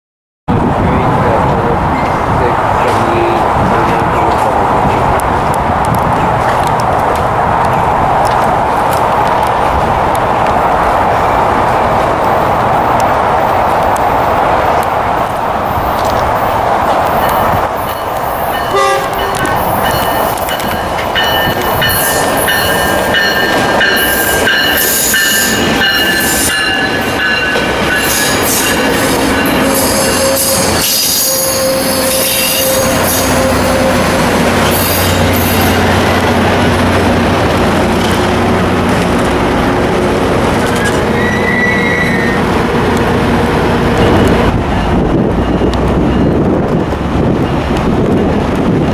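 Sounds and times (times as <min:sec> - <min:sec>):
diesel locomotive engine hum: 0:00.5 - 0:48.9
rail clicks clattering: 0:01.4 - 0:48.9
train wheels squealing: 0:17.2 - 0:35.8, 0:40.6 - 0:42.5
train horn: 0:18.6 - 0:19.6, 0:28.1 - 0:35.8, 0:41.1 - 0:42.5.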